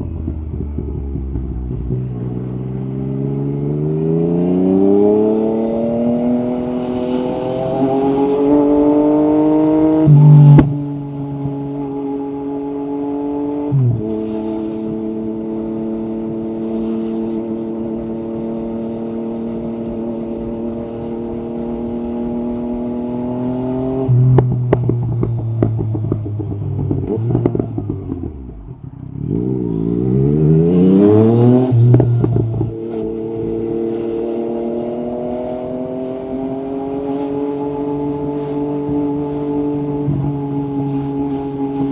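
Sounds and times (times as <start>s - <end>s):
motorcycle engine revving: 0.0s - 41.9s
exhaust crackles and pops: 24.3s - 28.6s.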